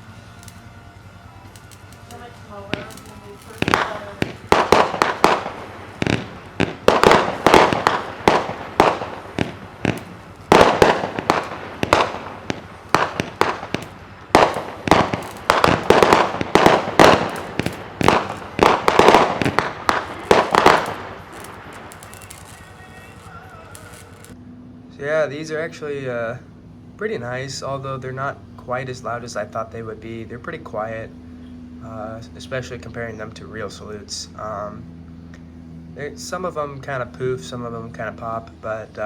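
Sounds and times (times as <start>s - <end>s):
firework salutes popping: 0.0s - 24.4s.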